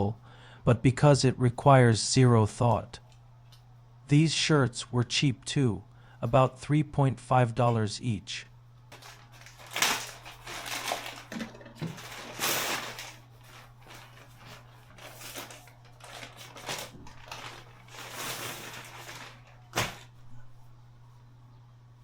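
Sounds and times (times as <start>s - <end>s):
faint steady hum: 0.0s - 22.0s
rustling and handling noises: 8.9s - 20.8s.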